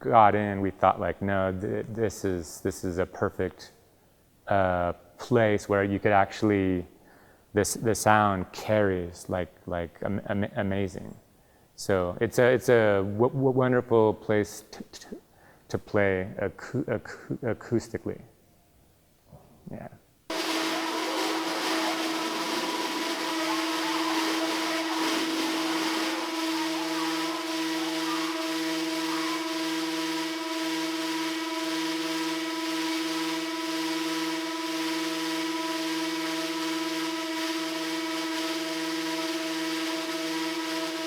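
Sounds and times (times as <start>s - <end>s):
dense noisy hiss: 0.0s - 3.8s, 4.4s - 11.0s, 19.6s - 41.0s
feedback drone: 20.3s - 41.0s
low hum: 20.3s - 41.0s.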